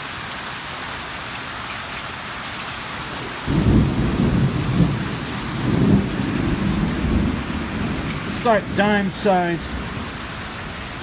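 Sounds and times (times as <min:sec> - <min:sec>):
heavy rain and hail hissing: 0:00.0 - 0:11.0
thunder rumbling: 0:03.2 - 0:11.0.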